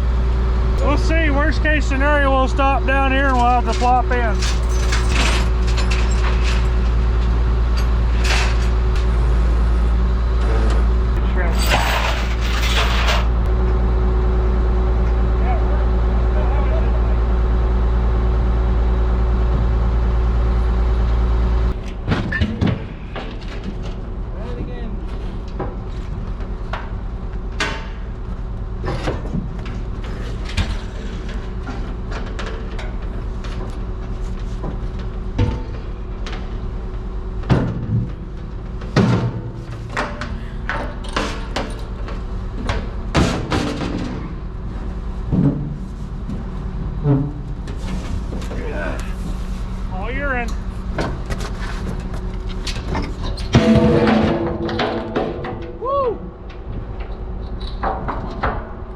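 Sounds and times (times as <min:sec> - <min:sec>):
truck engine droning: 0:00.0 - 0:58.9
knocks and clatter: 0:01.8 - 0:09.3, 0:28.8 - 0:44.4, 0:45.2 - 0:48.6, 0:50.9 - 0:58.9
heavy clunks and knocks: 0:37.4 - 0:44.4, 0:45.2 - 0:46.4, 0:50.9 - 0:58.9.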